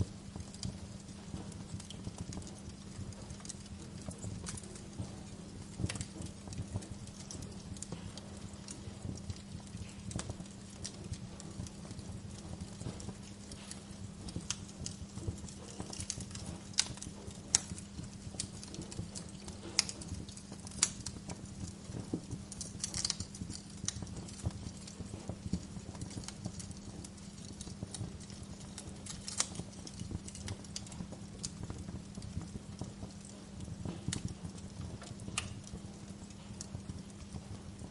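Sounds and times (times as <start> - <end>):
steady low hum: 0.0 - 37.9
wood fire crackling: 0.0 - 37.9.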